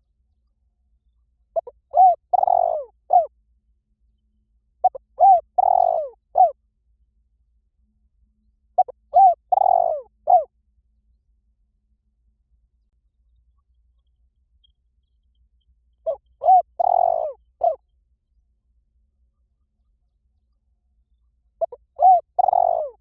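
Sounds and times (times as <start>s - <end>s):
dove cooing: 1.6s - 3.3s, 4.8s - 6.6s, 8.8s - 10.5s, 16.0s - 17.8s, 21.6s - 23.0s.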